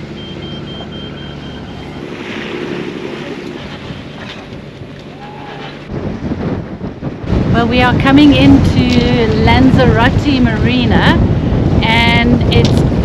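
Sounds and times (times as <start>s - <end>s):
water rushing past hull: 0.0s - 8.1s
boat engine drone: 0.0s - 13.0s
wind buffeting microphone: 0.0s - 13.0s
faint high beeps: 0.1s - 2.1s.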